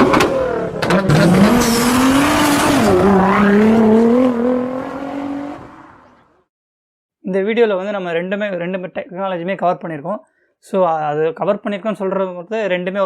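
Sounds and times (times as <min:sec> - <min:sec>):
car engine revving: 0:00.0 - 0:06.4.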